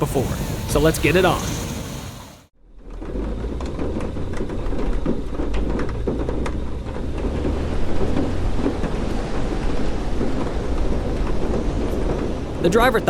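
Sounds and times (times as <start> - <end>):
storm wind: 0.0 - 13.0
thunder rumble: 0.0 - 13.0
heavy rain pelting: 3.1 - 13.0.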